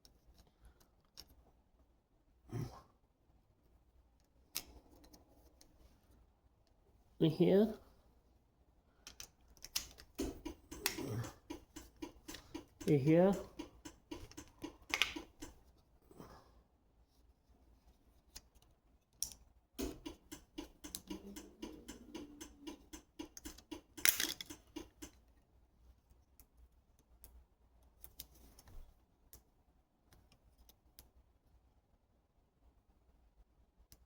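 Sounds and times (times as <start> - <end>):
small clicks and taps: 9.0 - 15.6, 18.3 - 25.3.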